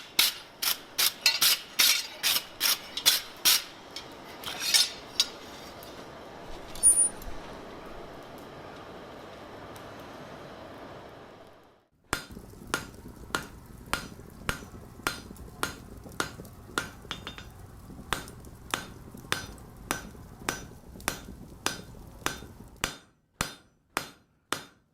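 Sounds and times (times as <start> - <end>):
hammer striking steel on anvil: 0.0 - 5.4, 16.8 - 17.5, 18.2 - 24.9.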